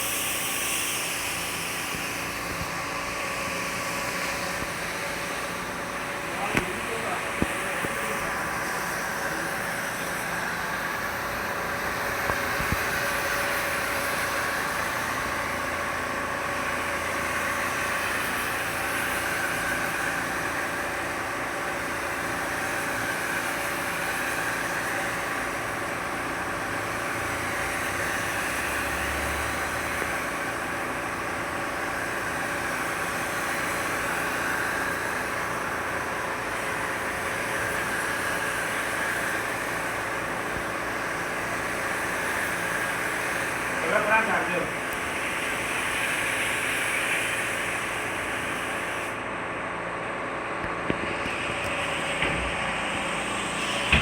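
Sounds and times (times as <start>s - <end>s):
motor humming: 0.0s - 49.4s, 50.5s - 54.0s.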